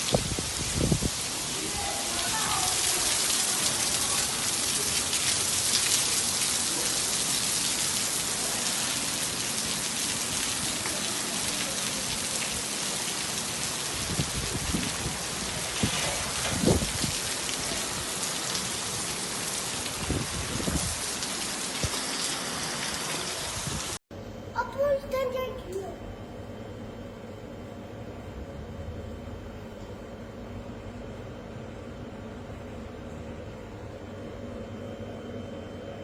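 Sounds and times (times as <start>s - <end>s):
heavy rain falling: 0.0s - 24.0s.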